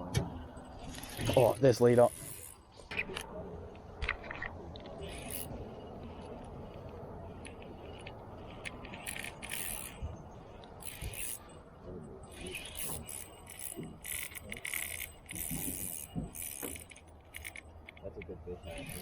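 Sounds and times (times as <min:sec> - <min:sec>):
fishing reel drag buzzing: 0:01.0 - 0:02.6, 0:05.0 - 0:05.5, 0:07.9 - 0:10.0, 0:10.8 - 0:11.5, 0:12.3 - 0:17.7, 0:18.8 - 0:19.0.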